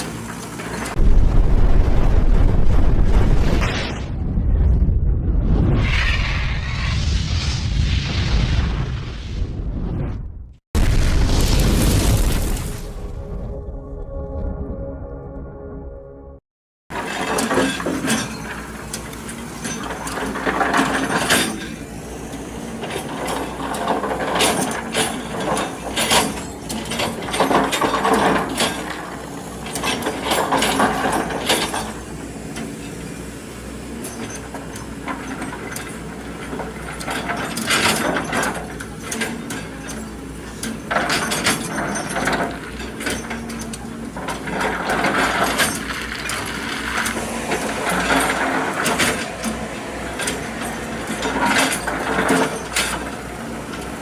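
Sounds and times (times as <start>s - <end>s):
excavator clanking and rattling: 0.0s - 1.0s, 16.9s - 54.0s
excavator engine running: 0.0s - 3.3s, 16.9s - 54.0s.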